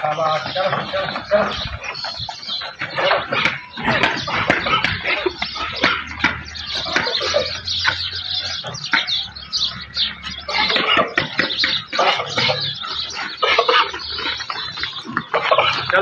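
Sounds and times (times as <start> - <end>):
birds chirping and clucking: 0.0 - 16.0.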